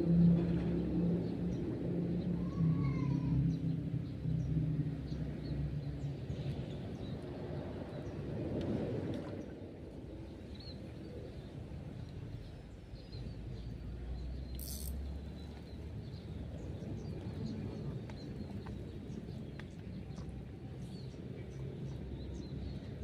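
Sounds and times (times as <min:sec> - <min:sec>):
small clicks: 0:14.6 - 0:15.0.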